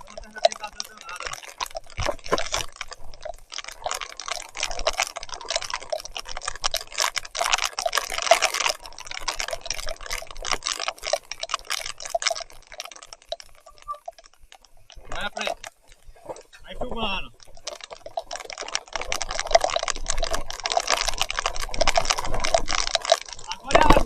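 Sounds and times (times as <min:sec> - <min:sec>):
heavy rain: 0:00.0 - 0:02.7, 0:19.0 - 0:24.0
bike clicks: 0:00.0 - 0:24.0.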